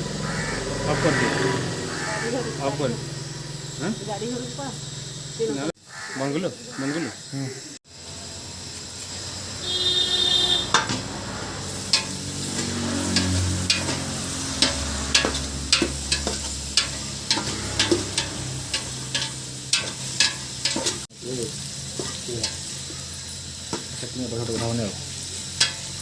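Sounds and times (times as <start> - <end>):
curry sizzling in a pan: 0.2 - 26.0
spoon scraping a pan: 11.8 - 21.1, 21.9 - 26.0.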